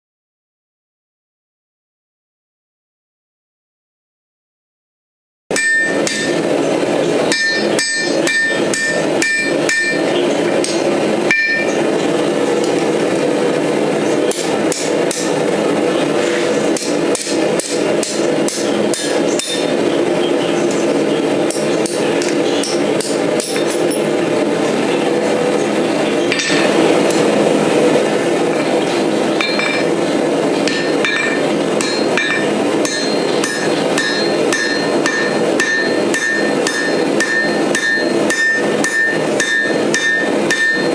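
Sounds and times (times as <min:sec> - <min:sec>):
hammer forging steel on anvil: 0:05.5 - 0:11.8, 0:14.3 - 0:15.4, 0:16.6 - 0:19.8, 0:21.4 - 0:24.2, 0:26.3 - 0:27.4, 0:28.0 - 0:40.9.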